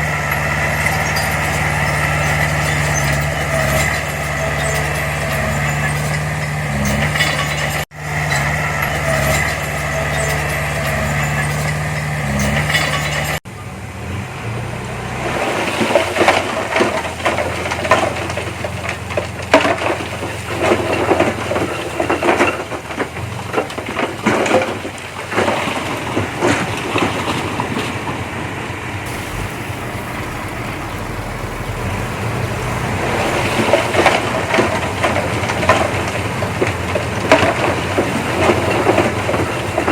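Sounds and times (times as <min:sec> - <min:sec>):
machinery clanking and rattling: 0:00.0 - 0:13.4, 0:29.1 - 0:39.9
diesel engine running: 0:00.0 - 0:15.6, 0:29.1 - 0:39.9.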